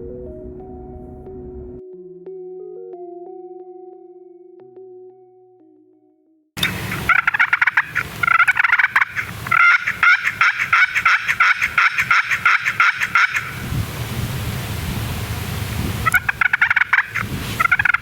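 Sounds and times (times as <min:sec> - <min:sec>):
turkey yelping: 0:06.6 - 0:14.0, 0:16.0 - 0:18.0.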